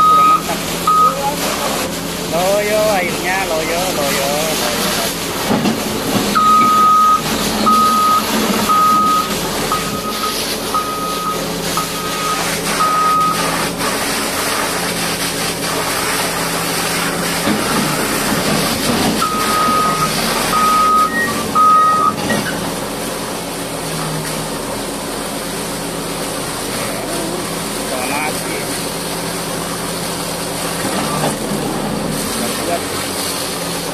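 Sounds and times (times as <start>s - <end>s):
reversing alarm beeping: 0.0s - 1.2s, 6.3s - 13.6s, 19.2s - 22.4s
diesel engine running: 0.0s - 33.9s.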